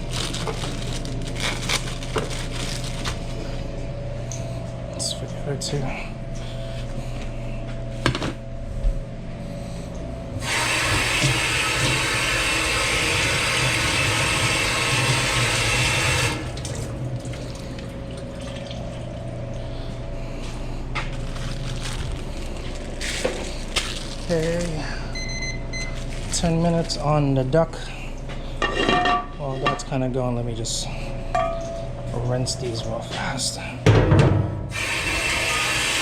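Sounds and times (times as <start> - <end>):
kitchen equipment hum: 0.0 - 36.0
water running from kitchen tap: 10.4 - 19.2, 34.7 - 36.0.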